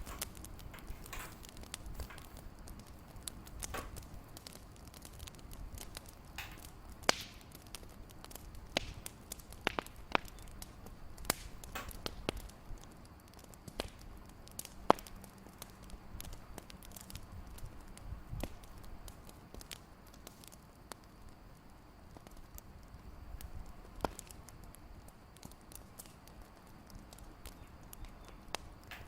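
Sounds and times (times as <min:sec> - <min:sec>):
fire crackling and popping: 0:00.0 - 0:29.0.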